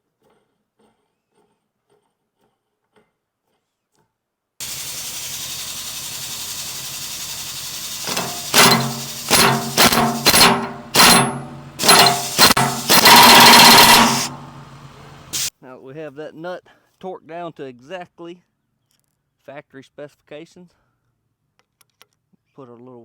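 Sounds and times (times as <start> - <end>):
steady running noise with hum: 4.6 - 15.5
impact wrench hammering: 7.4 - 15.5.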